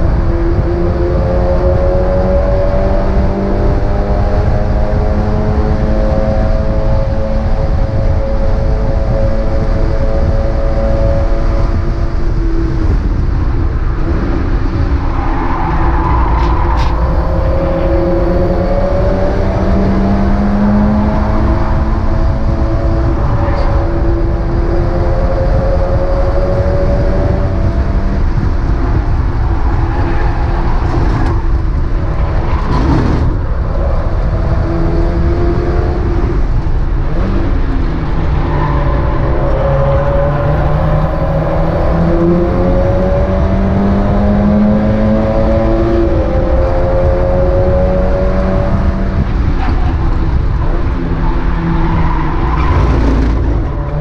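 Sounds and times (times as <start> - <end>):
road and wind rumble: 0.0 - 54.0
race car engine shifting gears: 14.7 - 54.0.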